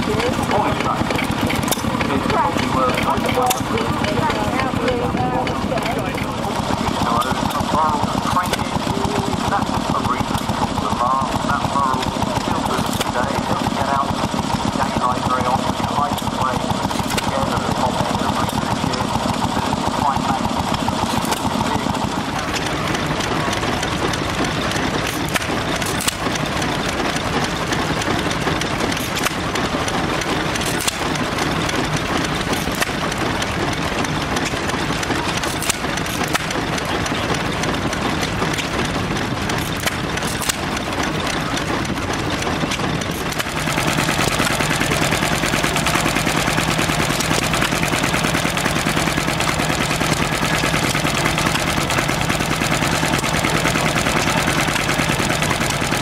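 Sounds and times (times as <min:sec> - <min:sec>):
engine running: 0:00.0 - 0:56.0
sharp clicks: 0:05.7 - 0:10.6, 0:16.1 - 0:17.3, 0:20.7 - 0:56.0.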